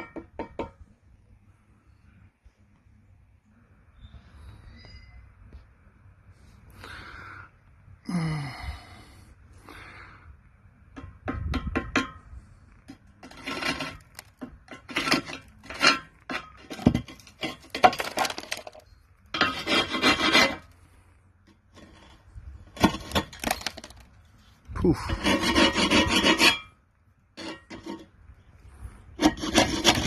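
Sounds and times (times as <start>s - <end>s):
hand tool scraping rust off iron: 11.0s - 20.8s, 21.5s - 24.0s, 24.8s - 28.2s, 29.1s - 30.0s.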